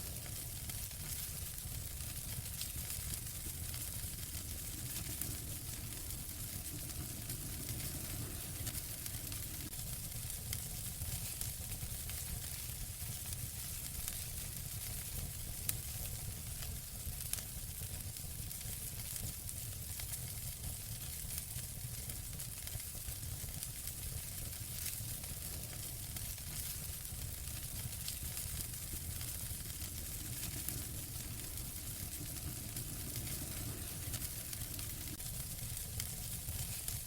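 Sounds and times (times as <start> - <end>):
fire crackling and popping: 0.0 - 37.0
wood fire hissing and rumbling: 0.0 - 37.0.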